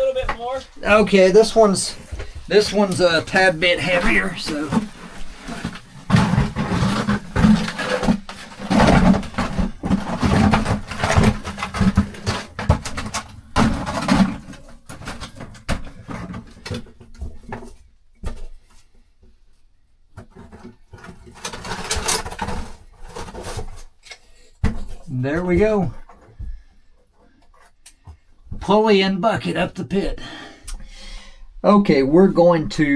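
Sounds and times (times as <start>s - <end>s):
bucket of rocks scraping against rock: 0.0s - 16.8s, 20.4s - 24.0s.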